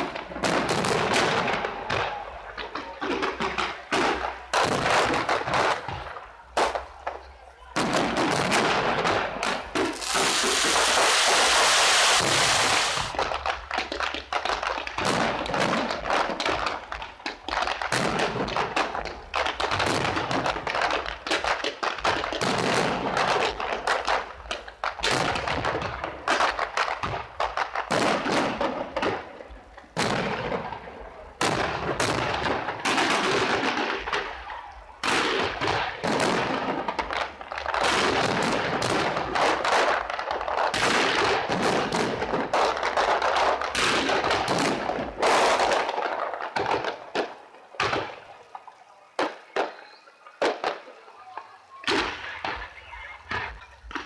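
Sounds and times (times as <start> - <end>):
fireworks bangs: 0.0 - 54.0.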